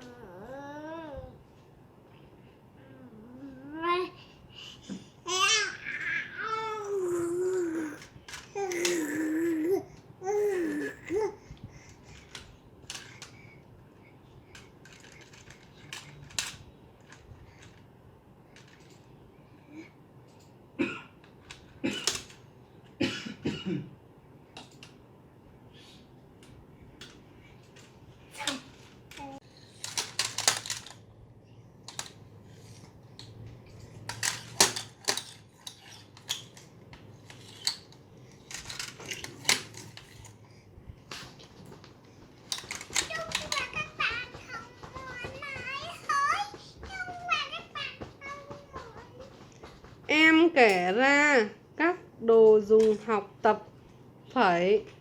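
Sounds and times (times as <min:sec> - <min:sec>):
toy airplane clicking and clattering: 0:11.9 - 0:13.4, 0:14.5 - 0:17.8, 0:21.2 - 0:22.4, 0:27.0 - 0:31.0, 0:31.8 - 0:40.4, 0:42.5 - 0:49.6
plastic toy airplane clicks: 0:29.8 - 0:31.0
toy knocking: 0:42.7 - 0:49.6.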